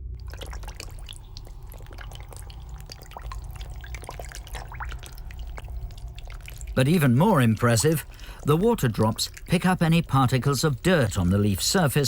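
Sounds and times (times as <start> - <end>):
water dripping: 0.0 - 12.0.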